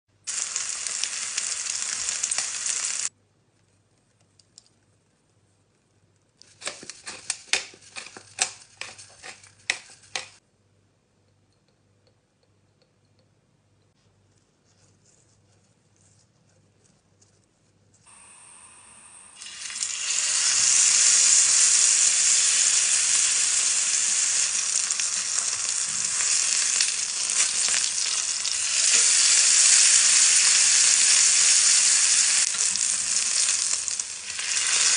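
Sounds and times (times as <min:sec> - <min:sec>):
steak sizzling in a frying pan: 0:00.3 - 0:03.1, 0:19.4 - 0:34.9.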